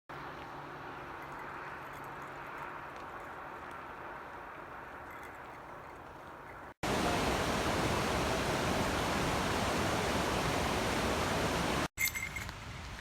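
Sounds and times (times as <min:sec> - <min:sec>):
waterfall and rushing river roar: 0:06.8 - 0:11.9.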